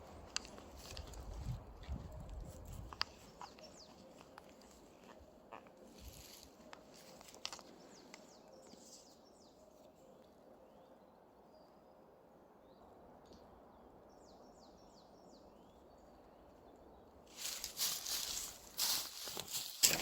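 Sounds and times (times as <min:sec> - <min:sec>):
small birds chirping: 0:00.0 - 0:11.8, 0:12.8 - 0:20.0.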